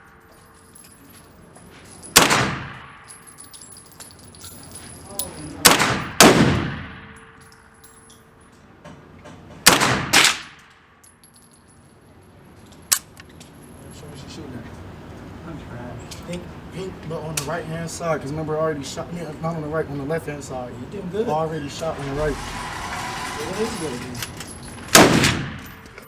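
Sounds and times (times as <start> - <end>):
gunshots ringing out: 2.1 - 3.1, 5.6 - 7.4, 9.6 - 10.7, 24.9 - 26.0
sharp crack: 9.6 - 10.8, 24.9 - 26.0.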